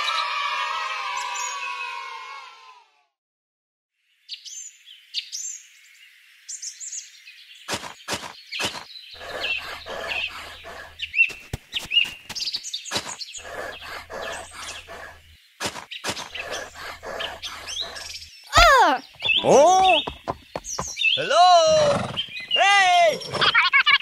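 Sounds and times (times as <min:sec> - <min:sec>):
birds chirping: 0:06.5 - 0:24.0.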